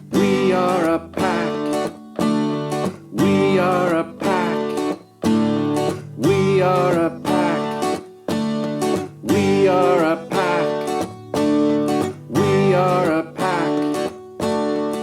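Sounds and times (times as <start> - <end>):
person singing: 0.0 - 2.0, 3.1 - 5.1, 5.9 - 8.1, 9.1 - 11.2, 12.0 - 14.2
acoustic guitar strumming chords: 0.0 - 15.0.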